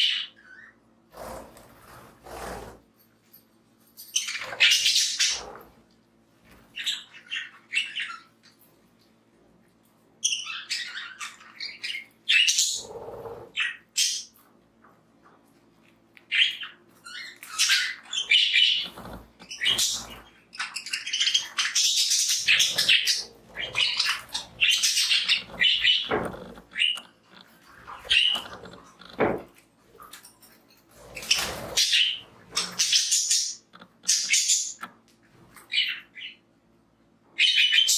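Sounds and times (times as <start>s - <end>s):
budgies chirping: 4.2s - 5.8s, 6.6s - 8.6s, 10.2s - 14.4s, 16.2s - 29.4s, 31.1s - 34.9s, 35.6s - 36.4s, 37.4s - 37.9s.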